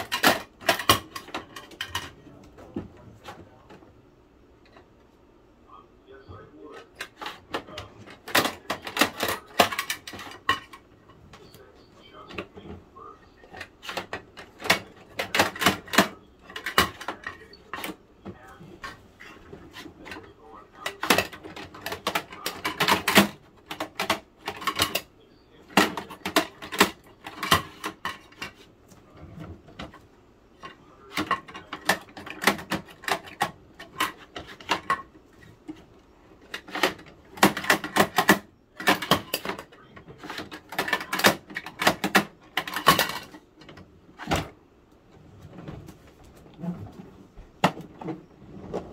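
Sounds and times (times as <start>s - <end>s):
plastic toys clattering: 0.0s - 3.8s, 6.7s - 11.4s, 13.4s - 18.0s, 18.7s - 44.6s.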